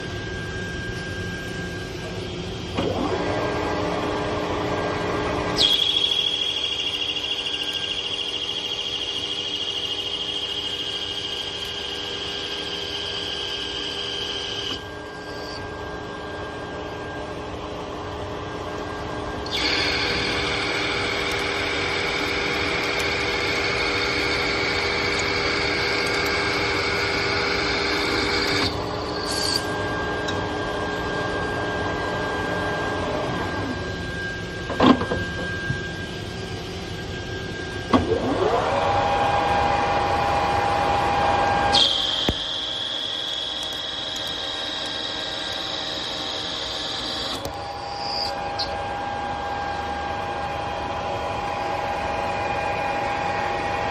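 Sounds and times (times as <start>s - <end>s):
metal lathe cutting steel: 19.4s - 30.2s, 38.2s - 49.2s.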